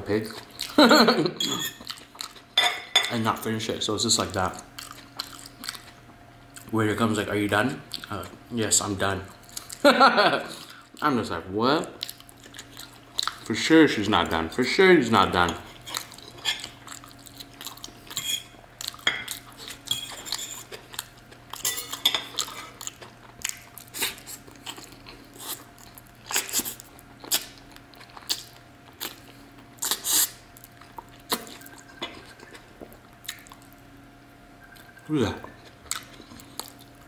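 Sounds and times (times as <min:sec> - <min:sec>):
person chewing meat off bone: 0:01.7 - 0:02.5, 0:04.6 - 0:06.7, 0:15.8 - 0:33.8, 0:34.7 - 0:37.0.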